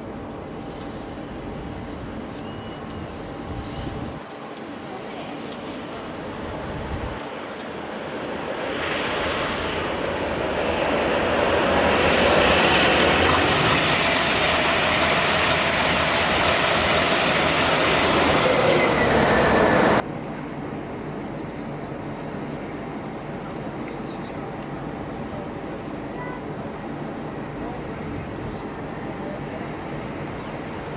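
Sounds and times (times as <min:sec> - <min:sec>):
train wheels rushing on rail: 0:05.5 - 0:20.0.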